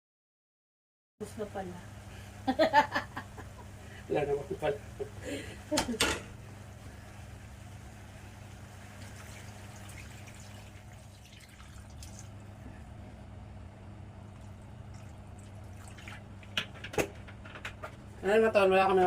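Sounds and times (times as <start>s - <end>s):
low steady hum: 1.2s - 19.0s
pot simmering: 3.4s - 17.9s.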